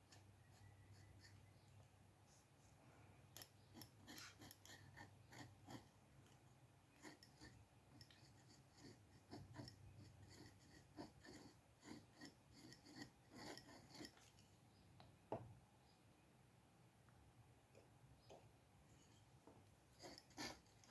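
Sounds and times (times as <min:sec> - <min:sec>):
pen scratching on paper: 0:00.1 - 0:01.5, 0:03.4 - 0:14.4, 0:20.0 - 0:20.9.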